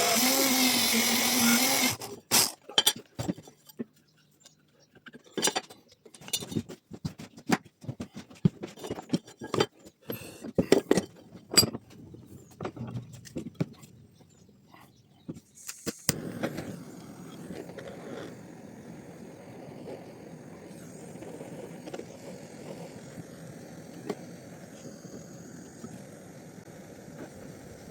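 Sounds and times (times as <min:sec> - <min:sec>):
short hiss: 0:15.6 - 0:18.4.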